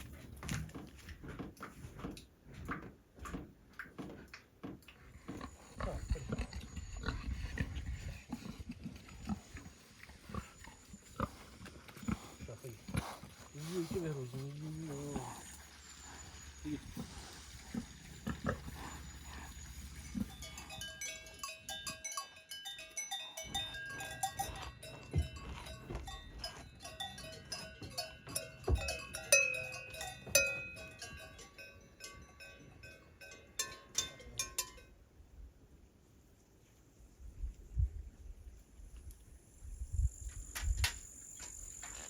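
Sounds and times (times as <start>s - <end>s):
livestock bells clanking: 13.5s - 35.0s.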